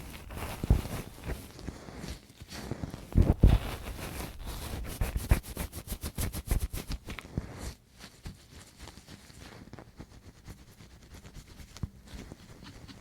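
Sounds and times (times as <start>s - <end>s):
tool scratching on microphone: 3.1s - 7.0s
thump on microphone: 3.2s - 3.8s.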